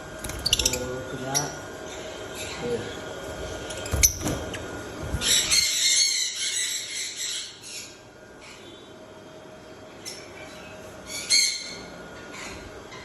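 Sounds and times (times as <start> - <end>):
lovebirds chattering and screeching: 0.2 - 8.9.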